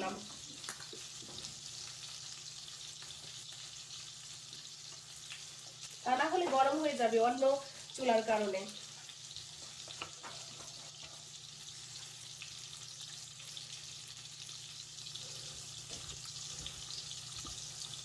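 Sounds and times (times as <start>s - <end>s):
fish sizzling in oil: 0.0s - 18.0s.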